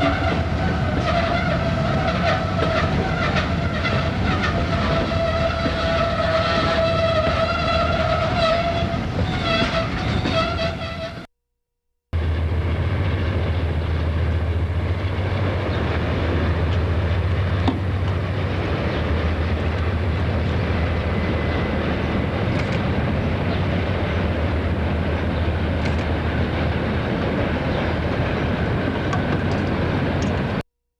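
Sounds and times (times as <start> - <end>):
locomotive air horn: 0.0 - 11.3
locomotives rumbling: 0.0 - 11.3, 12.2 - 30.6.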